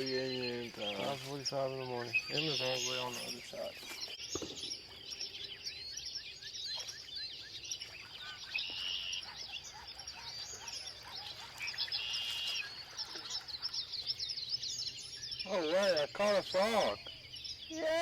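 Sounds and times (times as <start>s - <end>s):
birds chirping in dawn chorus: 0.0s - 18.0s.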